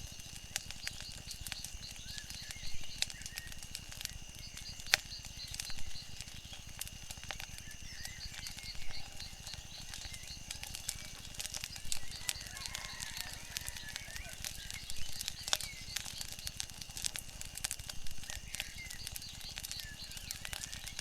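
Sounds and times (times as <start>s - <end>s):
wood fire crackling and popping: 0.0s - 21.0s
faint high chirping: 7.6s - 16.6s.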